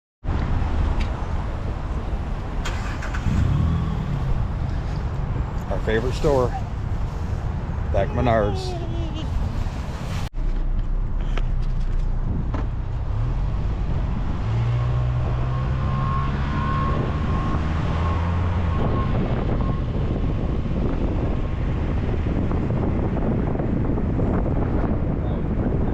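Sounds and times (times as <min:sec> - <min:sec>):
road and wind noise: 0:00.2 - 0:25.9
car engine accelerating: 0:02.6 - 0:06.9, 0:12.8 - 0:20.2.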